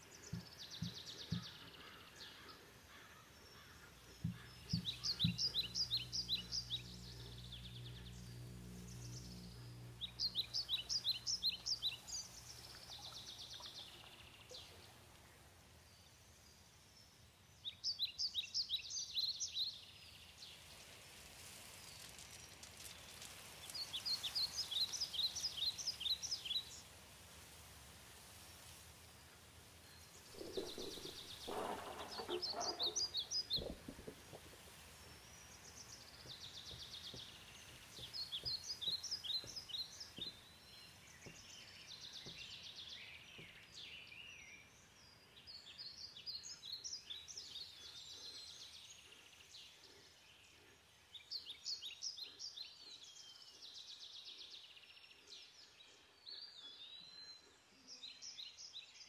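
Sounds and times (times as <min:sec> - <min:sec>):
faint background hiss: 0:00.0 - 0:59.0
songbird singing: 0:00.0 - 0:59.0.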